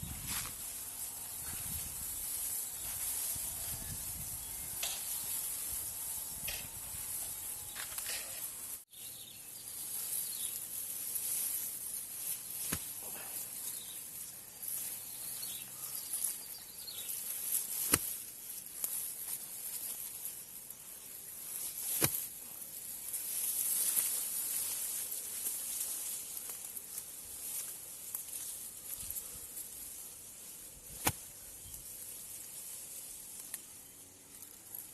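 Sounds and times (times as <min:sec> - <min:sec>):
high-pitched insect chorus: 0:00.0 - 0:08.6.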